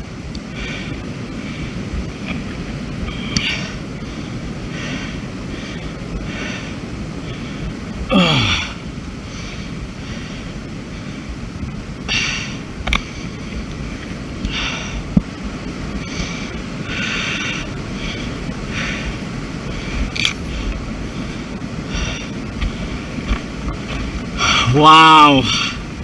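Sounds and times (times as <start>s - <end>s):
wind rumble on microphone: 0.0s - 26.0s
person breathing hard: 0.4s - 1.9s, 3.1s - 10.6s, 12.0s - 13.4s, 14.4s - 15.1s, 15.9s - 23.2s, 24.4s - 24.8s.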